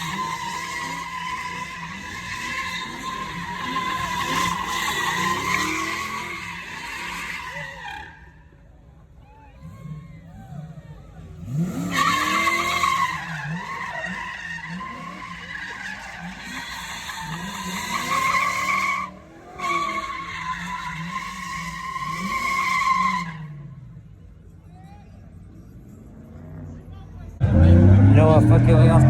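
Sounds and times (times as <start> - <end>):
car engine revving: 0.0 - 8.5, 9.6 - 24.2, 25.9 - 29.0
car tyres squealing: 0.0 - 29.0.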